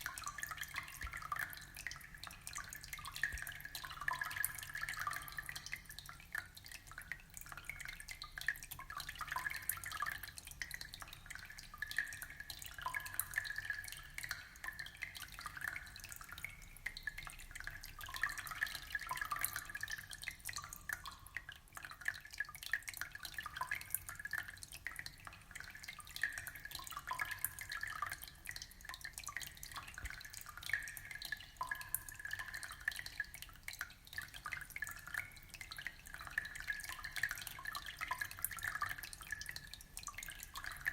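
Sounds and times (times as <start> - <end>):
aquarium water trickling and bubbling: 0.0 - 40.9.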